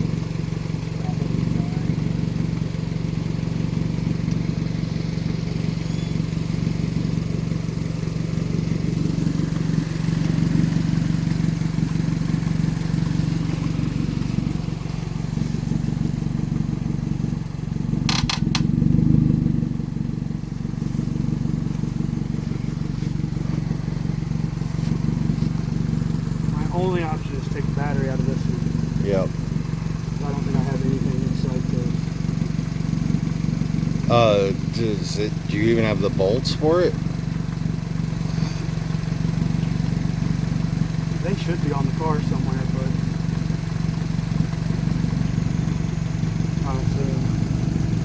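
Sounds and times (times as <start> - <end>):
car engine idling: 0.0 - 48.0
sharp clicks: 18.0 - 18.7.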